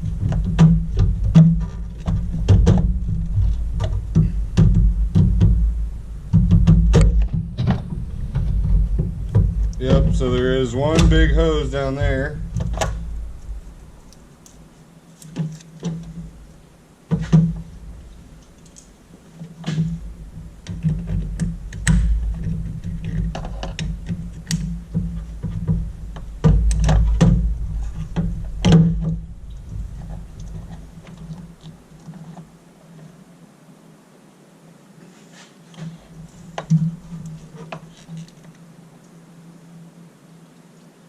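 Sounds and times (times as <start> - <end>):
low rumble: 0.0 - 14.8, 25.2 - 31.9
tools clicking and knocking on plastic: 19.4 - 29.2.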